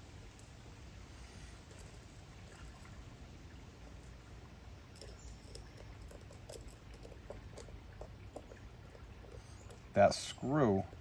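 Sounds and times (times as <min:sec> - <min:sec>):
low steady hum: 0:00.0 - 0:11.0
small metallic clicks and scrapes: 0:04.9 - 0:11.0.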